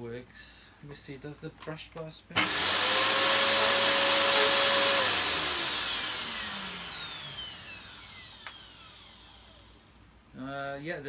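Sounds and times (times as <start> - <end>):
vacuum cleaner motor whining: 2.4 - 9.7.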